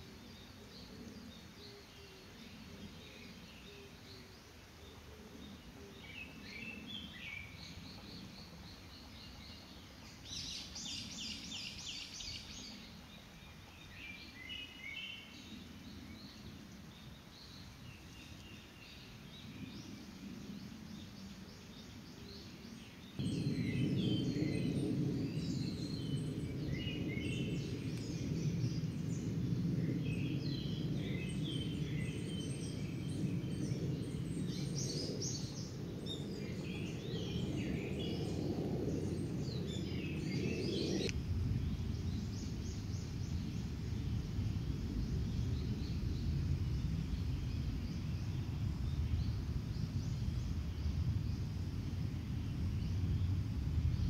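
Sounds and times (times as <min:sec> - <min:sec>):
steady low rushing: 0:23.2 - 0:54.0.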